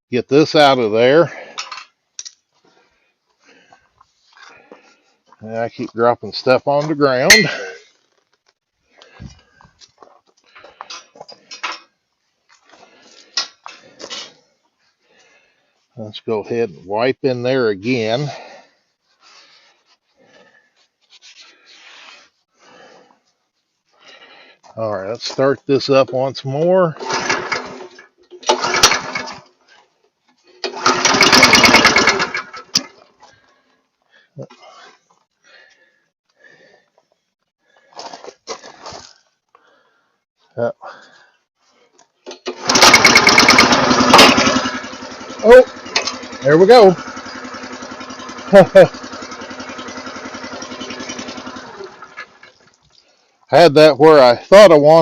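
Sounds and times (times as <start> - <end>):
hand tools clicking and scraping: 1.3 - 2.8, 3.4 - 6.0, 6.7 - 14.5, 27.0 - 33.8, 41.9 - 53.1
small gasoline engine pull-starting: 26.9 - 29.6, 30.5 - 33.1, 42.2 - 52.8.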